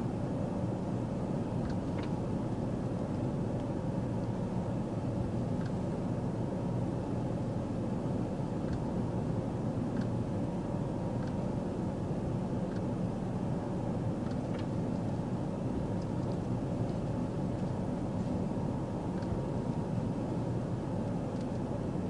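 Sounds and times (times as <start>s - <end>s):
vehicle running rumble: 0.0s - 22.0s
faint light ticks: 1.6s - 2.2s, 5.6s - 5.8s, 8.6s - 8.9s, 9.9s - 10.2s, 11.2s - 11.4s, 12.7s - 12.9s, 14.2s - 15.2s, 19.2s - 19.4s, 21.3s - 21.7s.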